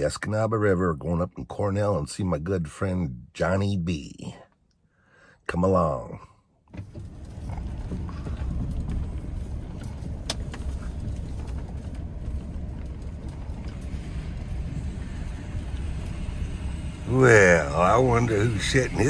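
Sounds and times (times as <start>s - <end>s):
vehicle engine and road rumble: 6.7s - 19.0s.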